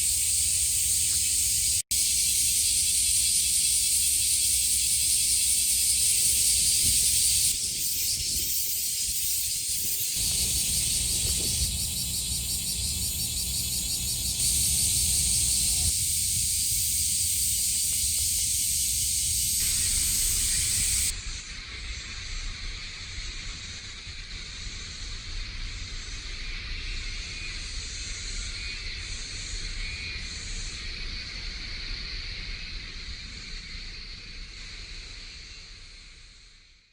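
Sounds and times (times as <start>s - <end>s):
cicadas shrilling: 0.0s - 22.2s.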